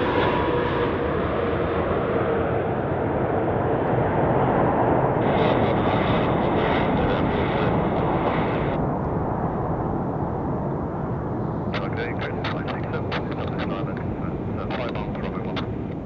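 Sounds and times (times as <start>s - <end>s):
jet engine rushing: 4.0s - 8.8s, 11.4s - 16.0s.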